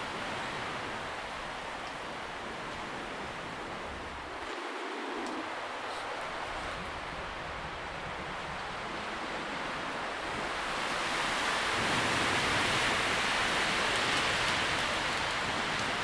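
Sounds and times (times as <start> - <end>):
wind rustling tree leaves: 0.0 - 16.0.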